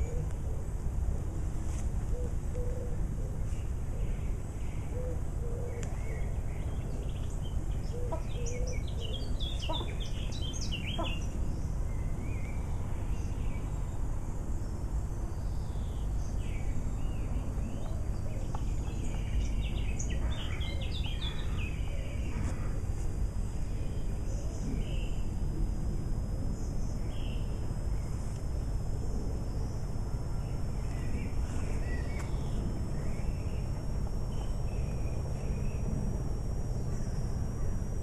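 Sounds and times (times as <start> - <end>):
low outdoor background rumble: 0.0 - 38.0
small birds chirping: 2.1 - 25.3, 30.4 - 35.9.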